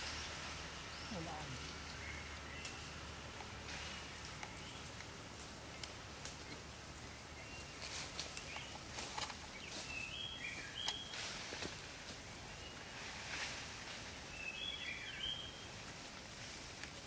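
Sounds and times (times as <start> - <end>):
rustles in leaf litter: 0.0 - 6.5, 7.2 - 17.0
forest background hiss: 0.0 - 17.0.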